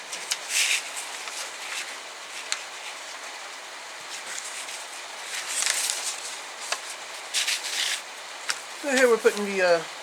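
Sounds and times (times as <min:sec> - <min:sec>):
page turning rustle: 0:00.0 - 0:09.8
paper booklet being handled: 0:00.0 - 0:09.8.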